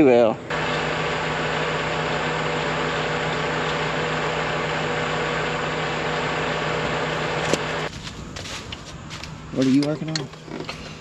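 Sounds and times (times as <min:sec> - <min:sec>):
engine idling: 0:00.0 - 0:07.9.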